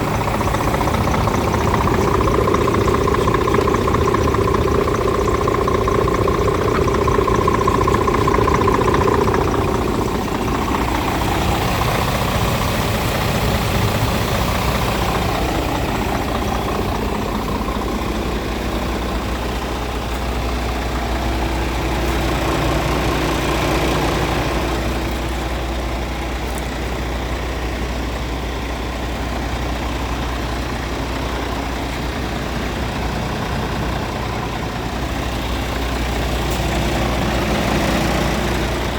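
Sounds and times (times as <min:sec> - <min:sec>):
high whine: 0:00.0 - 0:23.0
diesel engine idling: 0:00.0 - 0:38.9.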